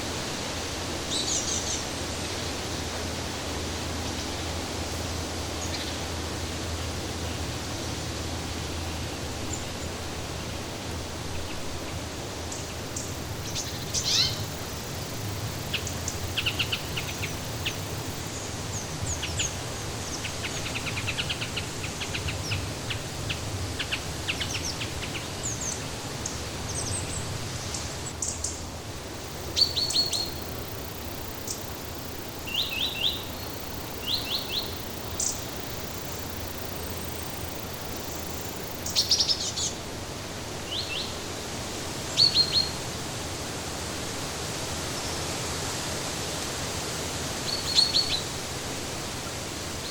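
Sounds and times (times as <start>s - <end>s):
rushing background hiss: 0.0s - 49.9s
songbirds chirping and trilling: 11.4s - 39.8s.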